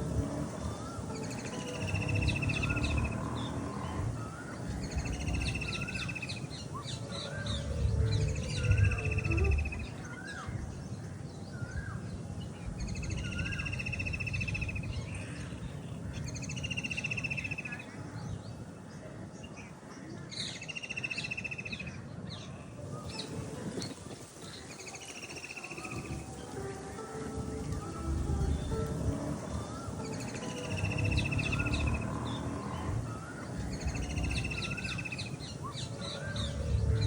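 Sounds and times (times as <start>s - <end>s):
bird rising chirps: 0.0s - 10.6s, 24.6s - 37.0s
steady low rumble: 0.0s - 11.0s, 26.1s - 37.0s.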